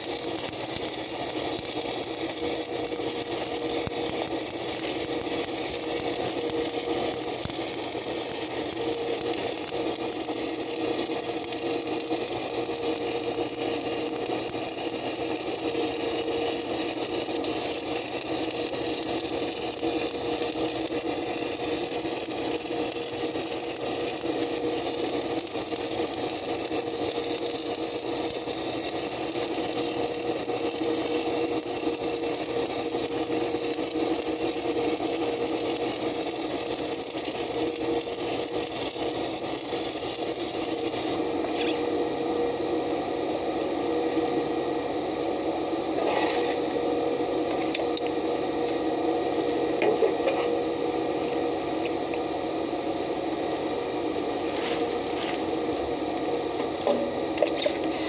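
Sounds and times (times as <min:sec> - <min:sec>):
welding arc crackling: 0:00.0 - 0:42.2
steady hum: 0:00.0 - 0:58.0.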